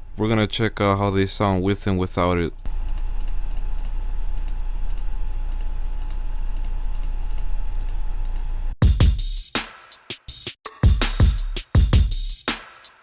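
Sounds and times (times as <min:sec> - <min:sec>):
trap drum loop: 0:08.8 - 0:13.0.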